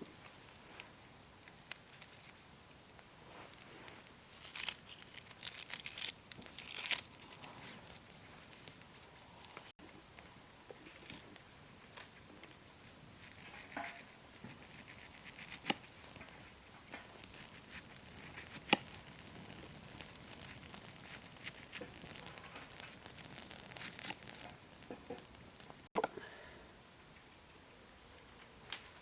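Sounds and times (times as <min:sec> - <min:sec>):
fire crackling: 0:00.0 - 0:26.0, 0:26.8 - 0:29.0
faint hiss: 0:00.0 - 0:29.0
sharp pops of fire: 0:11.4 - 0:25.9.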